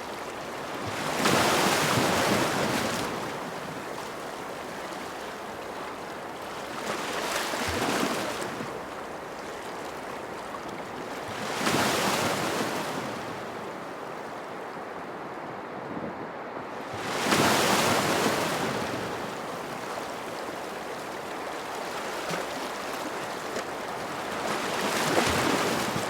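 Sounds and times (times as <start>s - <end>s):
waves breaking: 0.0s - 14.9s, 16.8s - 26.0s
ocean surf: 16.8s - 26.0s.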